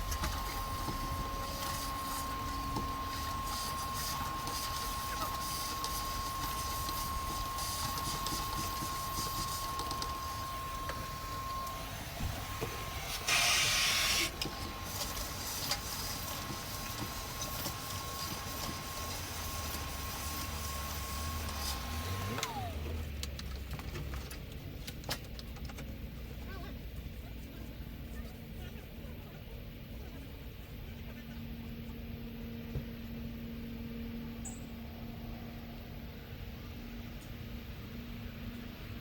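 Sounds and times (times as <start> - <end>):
loud hiss: 0.0 - 22.3
small motor whining: 0.0 - 23.3.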